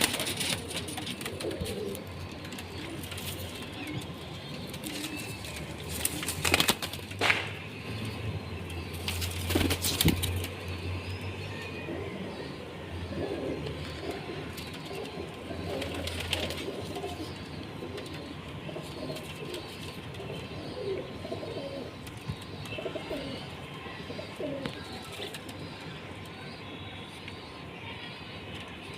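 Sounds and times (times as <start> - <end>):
pigeons cooing: 0.0 - 4.1, 11.8 - 25.7.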